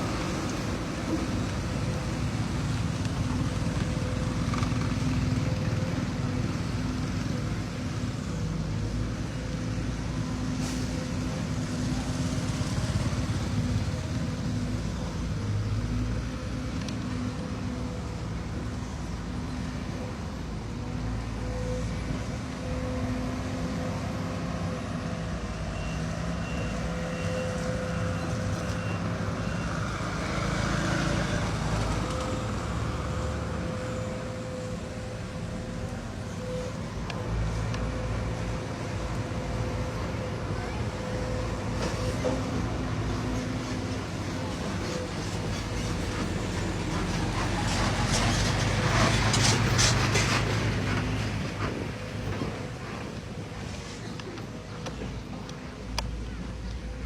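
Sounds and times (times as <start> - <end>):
diesel machinery engine rumble: 0.0 - 57.0.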